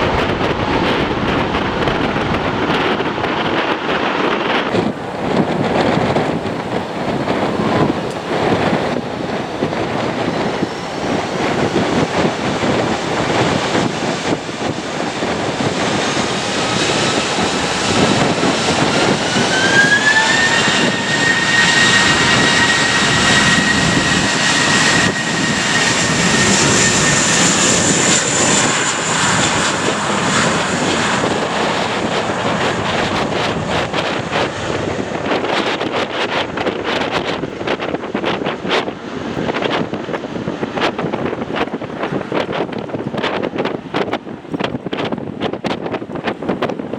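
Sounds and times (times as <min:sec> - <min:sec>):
jet engines whining: 0:00.0 - 0:46.9
wind buffeting microphone: 0:00.0 - 0:46.9.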